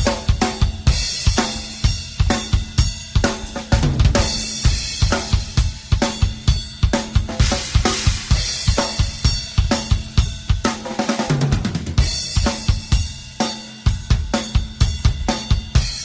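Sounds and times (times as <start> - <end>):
hi-hat and cymbal wash: 0.0 - 10.5.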